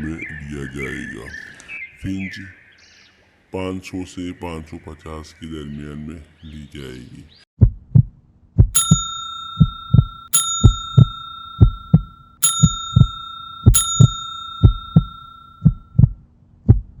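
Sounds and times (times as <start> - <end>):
bell-like chime ringing: 8.8 - 15.8.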